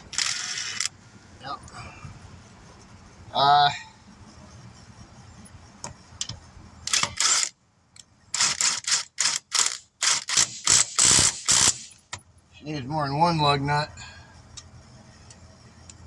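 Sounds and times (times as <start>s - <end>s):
impact wrench bursts: 0.0s - 0.9s, 6.9s - 7.5s, 8.4s - 12.0s.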